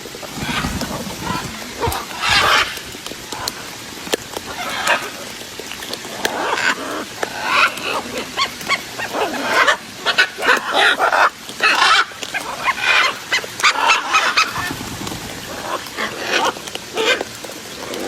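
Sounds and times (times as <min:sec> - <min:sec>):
parrots squawking: 0:00.4 - 0:02.8, 0:04.4 - 0:05.3, 0:06.2 - 0:17.2.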